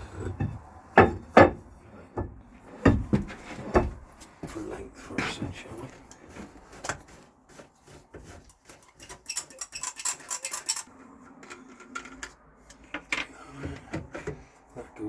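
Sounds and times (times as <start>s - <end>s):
pipe fittings clicking and rattling: 6.1s - 14.6s.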